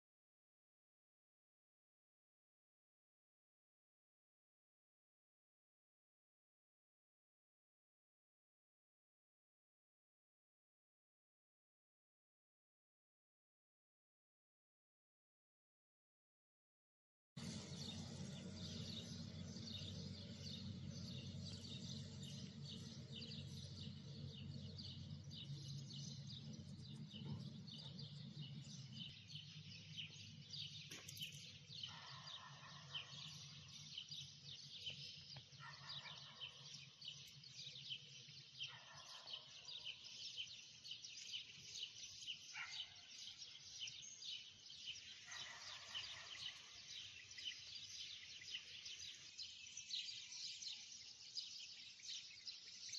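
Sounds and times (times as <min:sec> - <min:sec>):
small birds chirping: 0:17.4 - 0:52.9.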